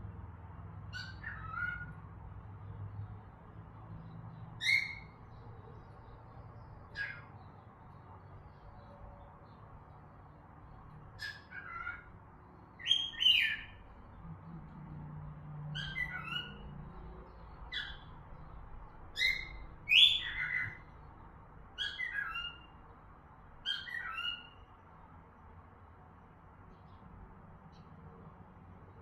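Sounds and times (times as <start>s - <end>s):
cockatiels whistling: 12.8s - 13.7s, 15.8s - 16.7s, 19.2s - 20.8s, 21.8s - 22.7s, 23.7s - 24.6s.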